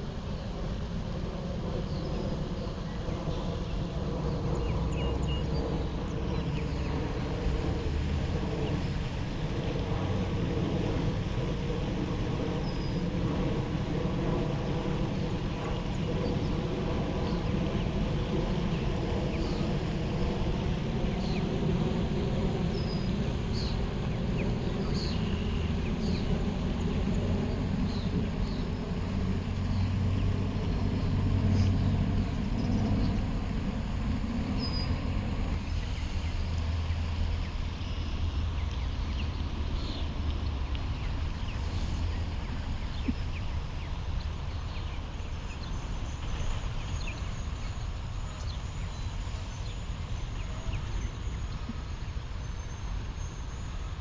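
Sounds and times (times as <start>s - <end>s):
low engine rumble: 0.0s - 54.0s.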